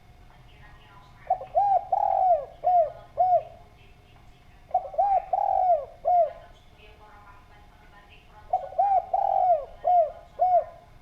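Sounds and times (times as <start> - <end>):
dove cooing: 1.2 - 3.8, 4.6 - 6.6, 8.5 - 11.0.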